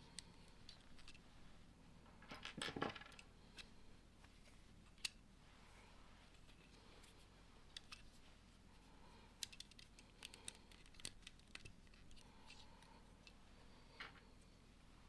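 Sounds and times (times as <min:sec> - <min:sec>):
low room noise: 0:00.0 - 0:15.0
plastic pieces clicking together: 0:00.1 - 0:01.2, 0:09.4 - 0:12.6.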